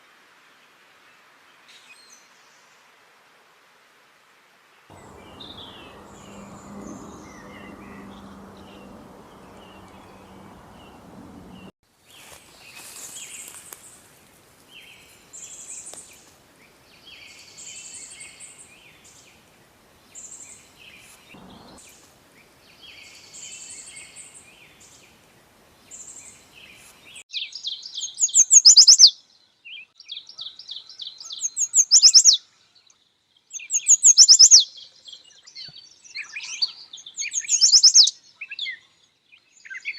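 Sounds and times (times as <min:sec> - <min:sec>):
background hiss: 0:00.0 - 0:16.9, 0:19.4 - 0:22.6
bird repeating song phrases: 0:04.9 - 0:11.7, 0:27.6 - 0:29.1, 0:31.1 - 0:32.4, 0:33.5 - 0:35.5, 0:36.2 - 0:38.8.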